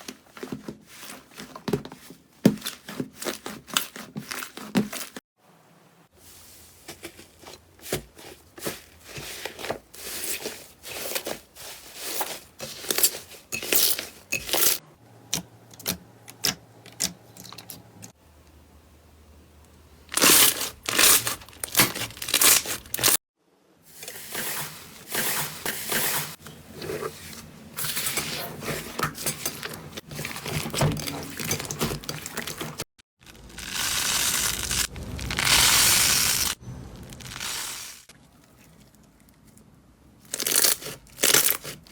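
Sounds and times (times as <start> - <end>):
slime crackling and popping: 33.2 - 38.1.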